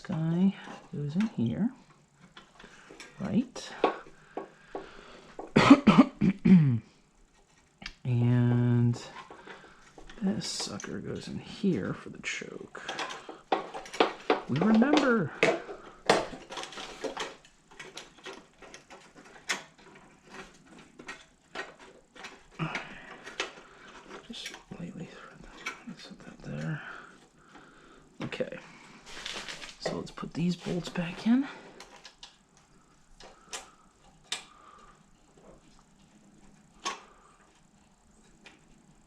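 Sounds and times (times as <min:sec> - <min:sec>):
small metal parts clicking: 0:12.8 - 0:24.8.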